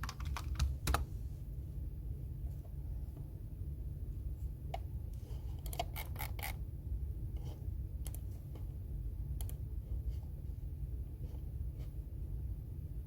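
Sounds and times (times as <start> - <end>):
keyboard typing: 0.0 - 1.0.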